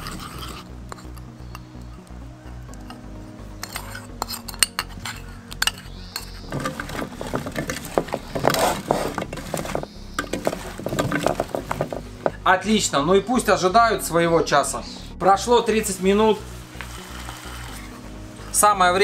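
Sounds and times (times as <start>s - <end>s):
spoon scraping and clinking bowl: 0.0s - 1.2s, 3.6s - 11.9s
hands tossing vegetables in bowl: 3.6s - 12.4s.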